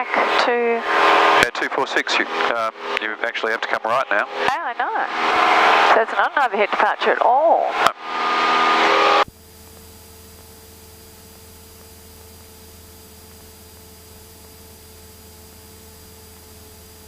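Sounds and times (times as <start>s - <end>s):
cockpit intercom hum and hiss: 0.0s - 8.0s
faint steady tones: 0.0s - 17.0s.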